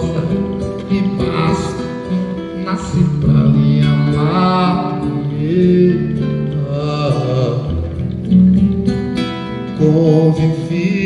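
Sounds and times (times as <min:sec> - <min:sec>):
person singing: 0:00.0 - 0:08.1, 0:09.8 - 0:11.0
acoustic guitar plucking: 0:00.0 - 0:11.0.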